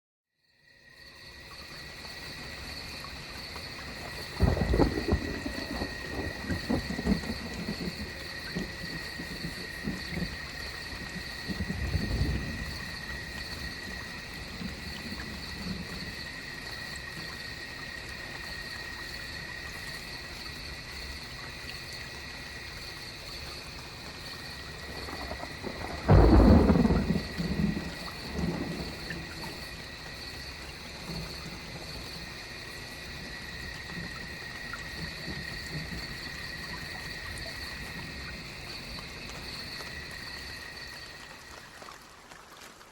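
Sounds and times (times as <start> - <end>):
steady rain: 0.8 - 42.9
low thunder rumble: 4.0 - 16.5, 24.7 - 32.4
sudden thunderclap: 4.4 - 10.4, 11.4 - 12.9, 24.9 - 29.5.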